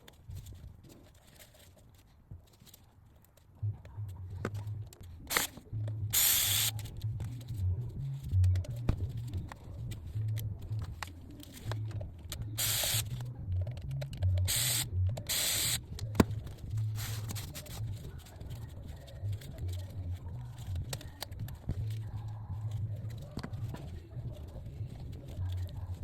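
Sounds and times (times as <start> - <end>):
spray can hissing: 6.2 - 6.7, 12.6 - 13.1, 14.5 - 15.8, 17.0 - 17.7.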